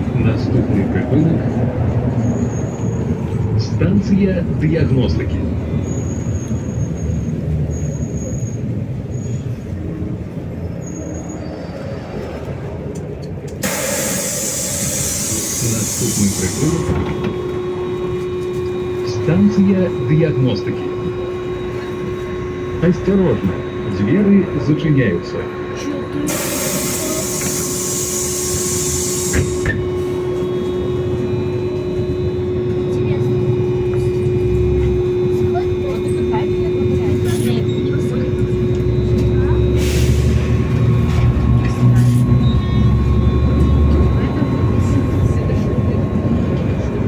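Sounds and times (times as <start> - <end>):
bus engine and road rumble: 0.0 - 47.0
bus doors thudding shut: 13.5 - 17.8, 26.3 - 30.2
compressed air hiss: 13.6 - 16.8, 26.3 - 29.7.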